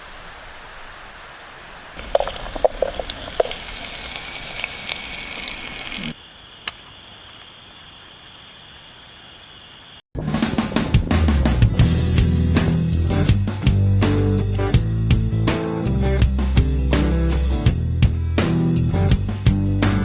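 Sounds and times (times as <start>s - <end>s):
sharp pops and crackles: 1.9s - 7.6s
food sizzling in a pan: 2.0s - 6.2s.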